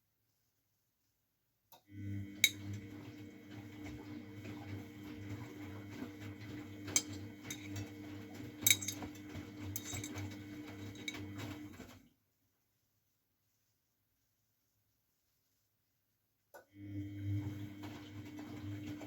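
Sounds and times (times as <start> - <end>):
washing machine drum humming: 1.9 - 12.0, 16.8 - 19.0
load clinking and knocking: 6.9 - 7.9, 8.6 - 11.2.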